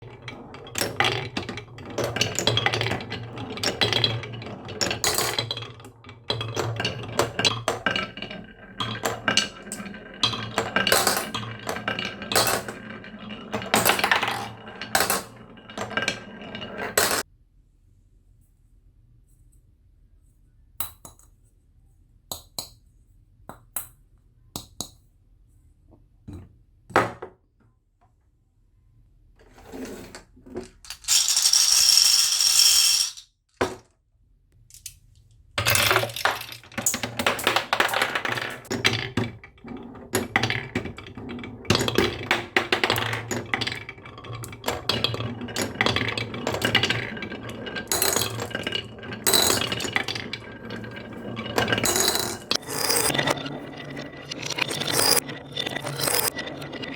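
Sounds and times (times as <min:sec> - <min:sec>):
marbles clattering down a track: 0:00.0 - 0:17.2, 0:30.6 - 0:33.7, 0:35.6 - 0:56.9.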